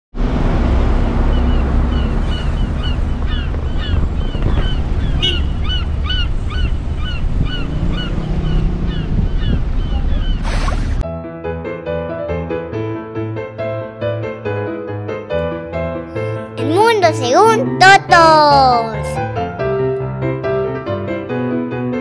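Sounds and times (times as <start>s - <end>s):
wind rumble on microphone: 0.2s - 11.0s
bird chirping: 1.2s - 10.4s.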